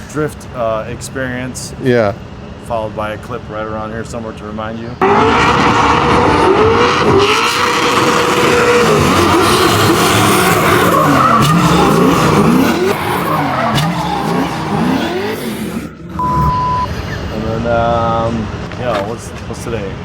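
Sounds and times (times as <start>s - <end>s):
car engine revving high: 5.0s - 17.1s
tyres squealing: 5.0s - 17.4s.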